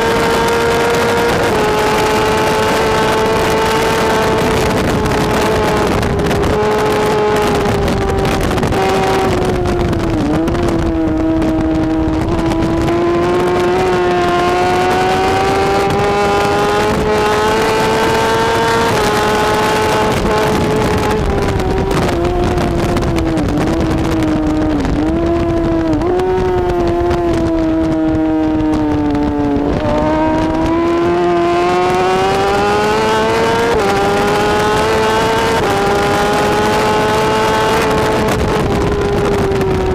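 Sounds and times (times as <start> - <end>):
motorcycle engine at high revs: 0.0 - 39.9
wind and road noise: 0.0 - 39.9.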